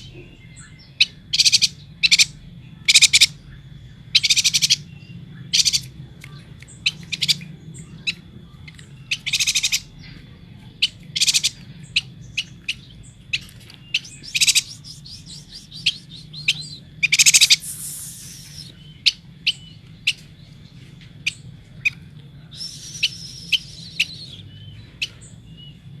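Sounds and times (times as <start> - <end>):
sharp bird chirps: 0.0 - 10.1, 10.8 - 20.6, 21.2 - 25.8
bird chattering calls: 0.0 - 25.5
low hum: 0.0 - 26.0
rasping bird phrases: 4.2 - 19.6, 21.3 - 25.3.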